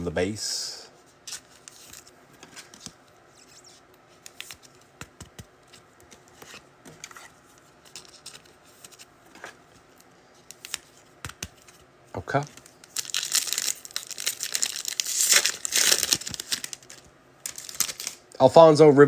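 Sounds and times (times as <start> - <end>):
trading cards clicking and sliding: 1.3 - 13.0.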